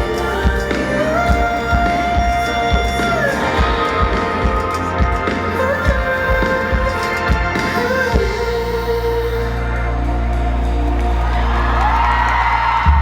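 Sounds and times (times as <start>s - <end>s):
drum beat: 0.0s - 8.4s
person singing long notes: 0.0s - 10.9s
bass: 0.0s - 13.0s.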